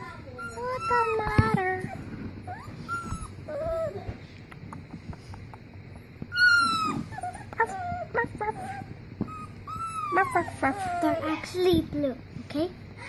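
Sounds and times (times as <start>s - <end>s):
puppy whimpering and whining: 0.0s - 4.2s, 6.3s - 11.6s.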